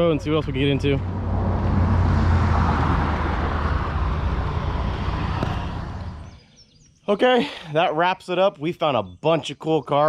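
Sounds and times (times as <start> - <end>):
car engine hum: 0.0 - 6.4
road and tyre noise: 0.0 - 6.4.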